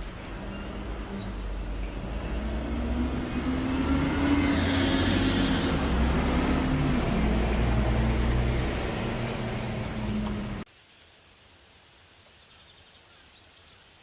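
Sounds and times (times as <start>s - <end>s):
road rumble: 0.0s - 10.7s
car engine hum: 2.0s - 10.7s.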